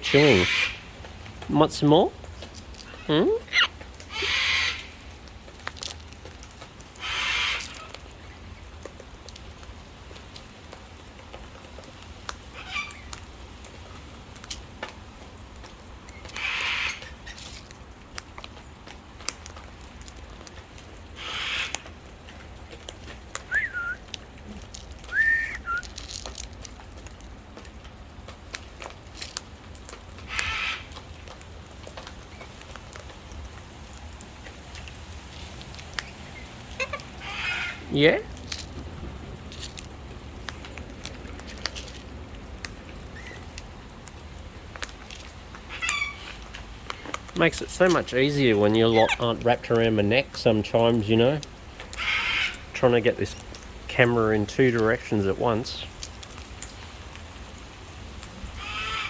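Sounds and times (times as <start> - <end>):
parrots screeching: 0.0 - 0.9, 2.8 - 5.0, 7.0 - 8.0, 12.6 - 13.2, 16.2 - 17.5, 21.2 - 21.9, 25.0 - 25.9, 30.3 - 31.0, 36.0 - 38.0, 45.7 - 47.2, 48.7 - 49.3, 51.9 - 52.7, 58.5 - 59.0
short whistled notes: 23.5 - 24.0, 25.1 - 25.8.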